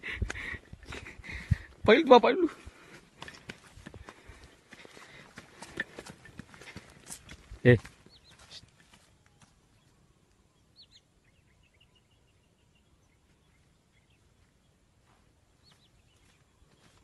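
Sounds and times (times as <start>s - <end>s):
faint bird chirps: 7.6s - 17.0s.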